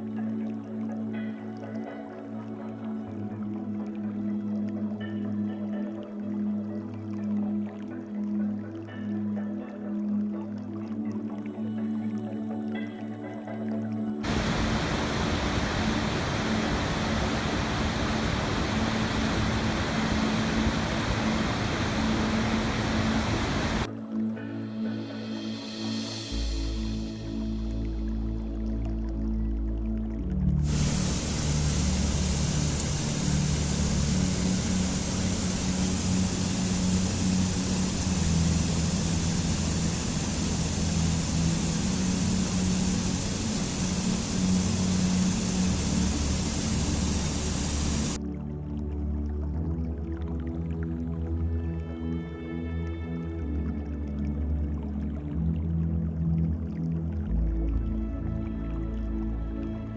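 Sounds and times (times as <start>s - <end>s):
low hum: 14.2s - 23.9s, 30.4s - 48.2s
rushing water: 14.2s - 23.9s, 30.6s - 48.3s.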